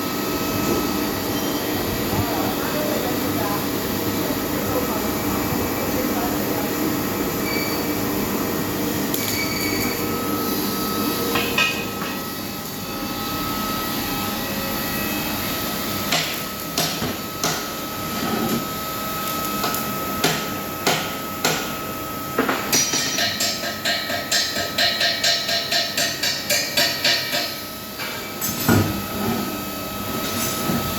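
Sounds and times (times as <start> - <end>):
steady background hum: 0.0 - 30.9.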